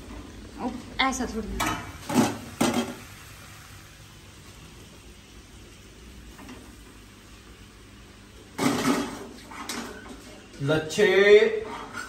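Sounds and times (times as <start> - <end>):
noodles sizzling in a pan: 0.0 - 12.0.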